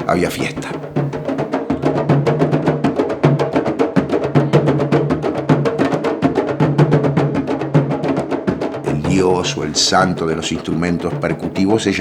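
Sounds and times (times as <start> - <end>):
drum ensemble playing: 0.0 - 12.0
low drum tones: 8.8 - 12.0.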